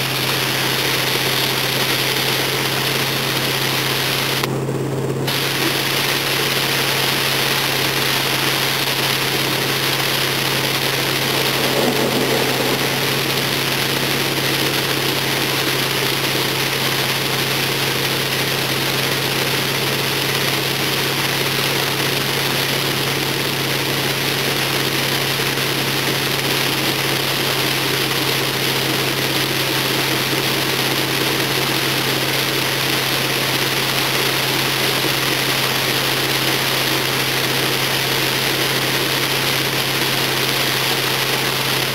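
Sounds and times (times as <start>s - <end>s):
hiss of water and road noise: 5.3s - 41.9s
car engine running: 8.4s - 17.9s.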